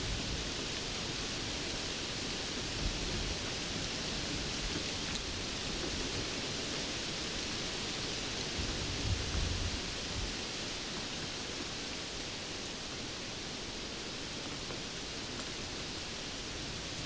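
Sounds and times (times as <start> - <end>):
steady rain hiss: 0.0 - 17.0.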